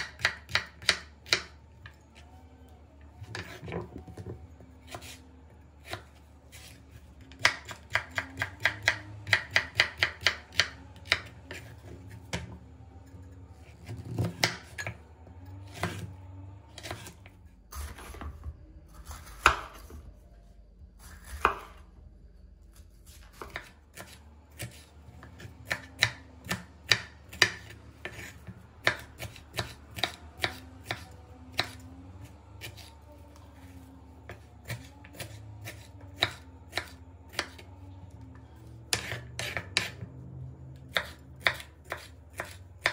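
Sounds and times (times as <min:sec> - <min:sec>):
knife chopping on cutting board: 0:07.4 - 0:12.5, 0:15.7 - 0:16.1, 0:19.0 - 0:20.0, 0:23.1 - 0:31.8, 0:34.3 - 0:37.6, 0:38.9 - 0:40.1, 0:40.9 - 0:42.9.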